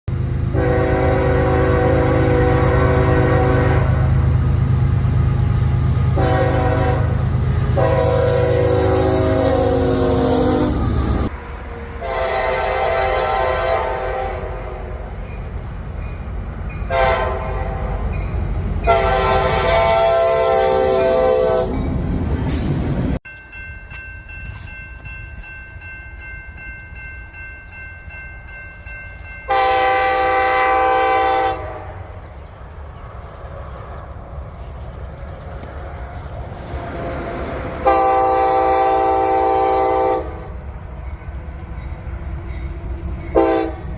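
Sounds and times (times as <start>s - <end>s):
rail rumble: 0.1s - 43.9s
locomotive air horn blasts: 0.5s - 4.2s, 6.1s - 11.3s, 12.0s - 15.0s, 16.9s - 18.1s, 18.8s - 21.8s, 29.5s - 32.1s, 36.7s - 40.5s, 43.3s - 43.9s
railroad crossing bell ringing: 12.4s - 22.1s, 23.2s - 30.8s, 37.9s - 43.9s.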